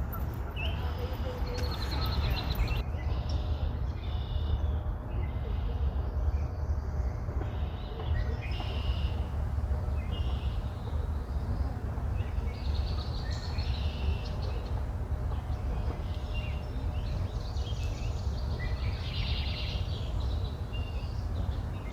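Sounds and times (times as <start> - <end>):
small birds chirping: 8.5 - 21.9
steady low rumble: 8.5 - 21.9.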